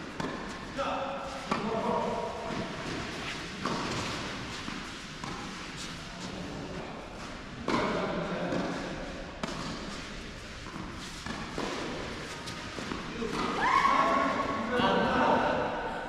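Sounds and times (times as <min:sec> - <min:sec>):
tennis ball bouncing: 0:00.0 - 0:00.7, 0:02.5 - 0:05.8, 0:09.4 - 0:13.6.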